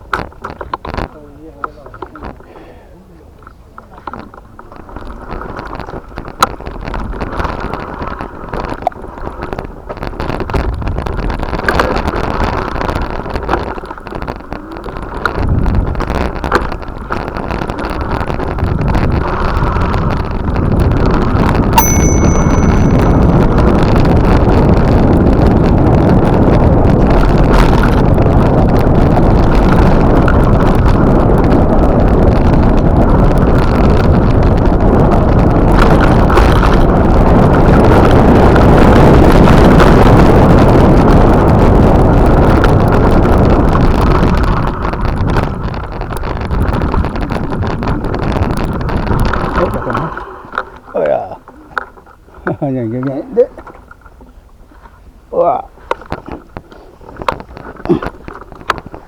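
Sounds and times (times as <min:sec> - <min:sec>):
wind buffeting microphone: 0:00.0 - 0:59.0
small bell ding: 0:21.8 - 0:24.2.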